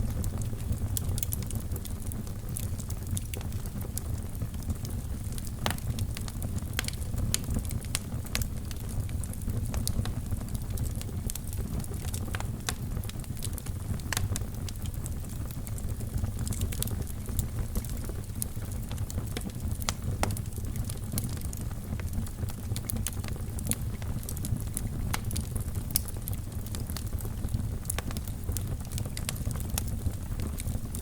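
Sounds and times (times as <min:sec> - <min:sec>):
fire crackling and popping: 0:00.0 - 0:31.0
low sound of flames: 0:00.0 - 0:31.0.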